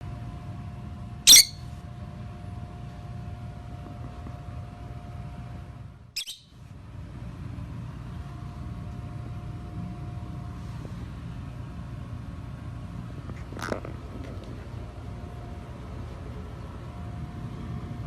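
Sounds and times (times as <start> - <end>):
faint hum: 0.0 - 18.0
low room rumble: 0.0 - 18.0
chick cheeping: 1.3 - 1.6, 6.2 - 6.4.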